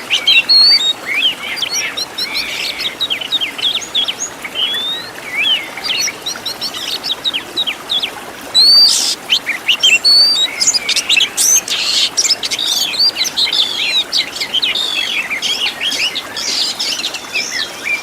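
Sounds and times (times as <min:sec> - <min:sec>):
bird singing whistled song: 0:00.0 - 0:02.4, 0:07.3 - 0:16.2.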